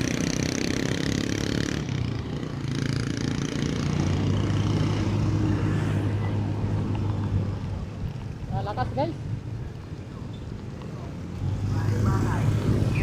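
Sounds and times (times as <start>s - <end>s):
motorcycle engine running: 0.0s - 5.2s.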